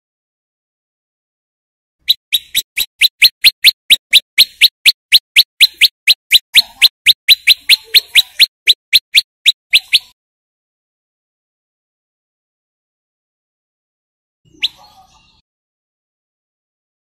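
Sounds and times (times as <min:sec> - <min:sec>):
bird singing sharp rising chirps: 0:02.0 - 0:10.2, 0:14.5 - 0:15.4.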